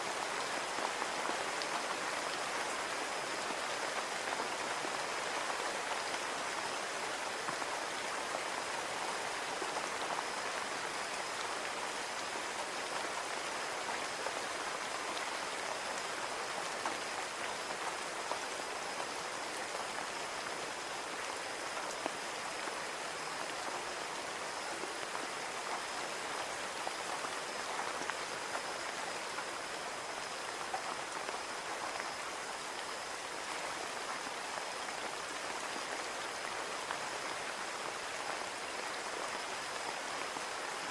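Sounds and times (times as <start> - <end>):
rain on a window: 0.0 - 40.9.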